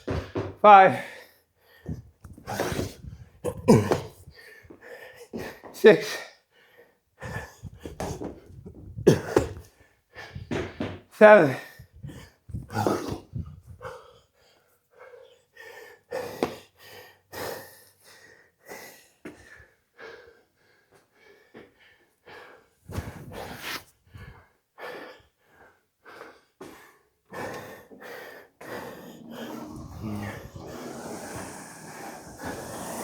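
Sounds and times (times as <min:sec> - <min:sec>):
man breathing hard: 0:24.1 - 0:33.0.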